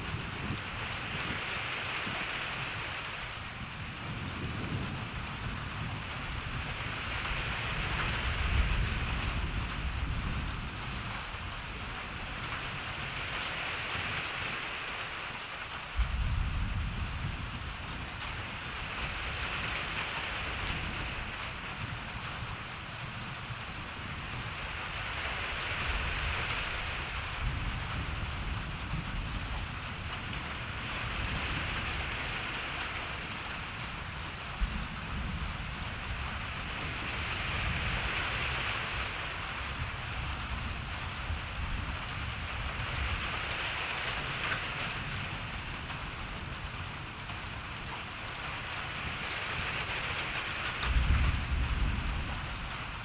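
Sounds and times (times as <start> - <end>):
steady rain falling: 0.0 - 53.0
thunder rumbling: 15.9 - 53.0.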